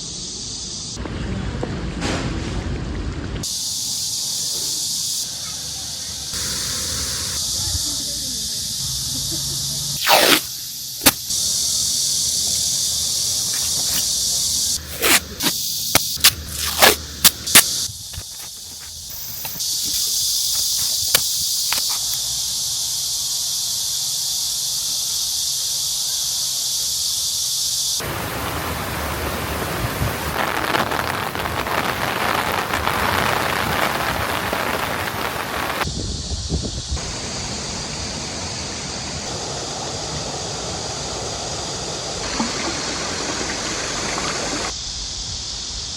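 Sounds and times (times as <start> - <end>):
insects droning: 0.0 - 1.0, 3.4 - 45.9.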